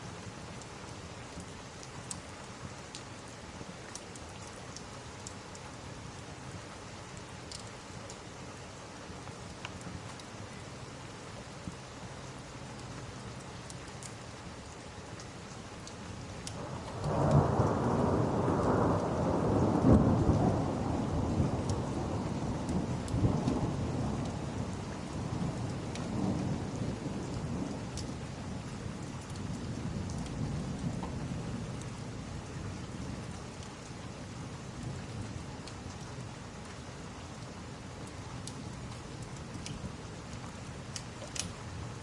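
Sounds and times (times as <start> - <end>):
steady rain: 0.0 - 42.0
thunder rumble: 16.5 - 33.4.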